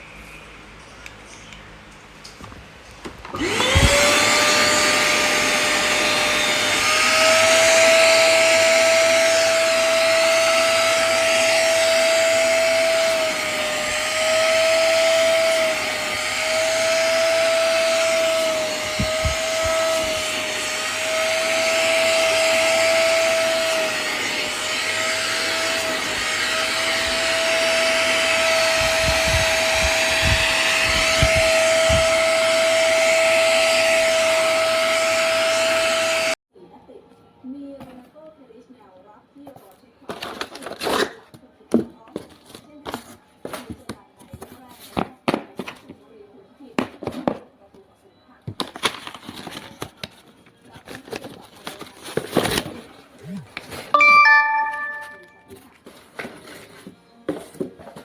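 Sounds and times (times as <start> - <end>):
suction motor whining: 3.3 - 36.3.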